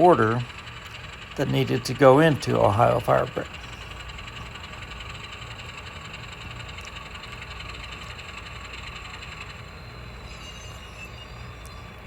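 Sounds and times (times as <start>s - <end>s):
model train humming and rattling: 0.0s - 12.0s.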